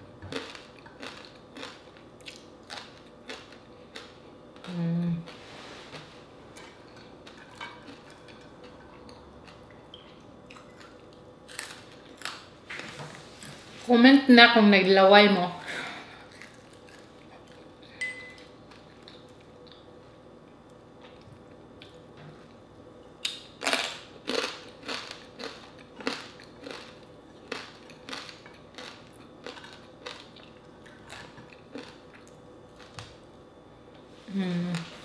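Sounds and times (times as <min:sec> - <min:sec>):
crunchy chewing of fried fish: 0:00.3 - 0:04.6, 0:06.6 - 0:12.6, 0:16.2 - 0:17.8, 0:23.3 - 0:33.2.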